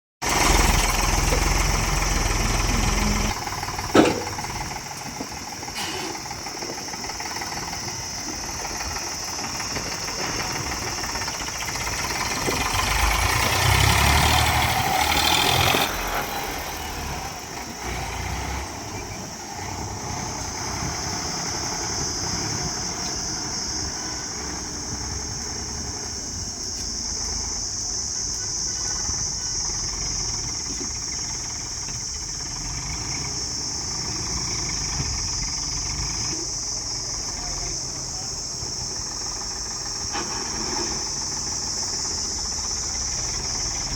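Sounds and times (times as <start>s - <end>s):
heavy vehicle engine running: 0.2s - 43.9s
sharp knock: 3.9s - 4.5s.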